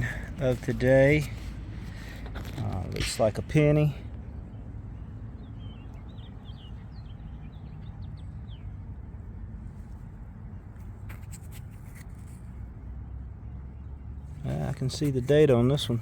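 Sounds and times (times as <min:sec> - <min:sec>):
small bird chirping: 0:04.5 - 0:08.8.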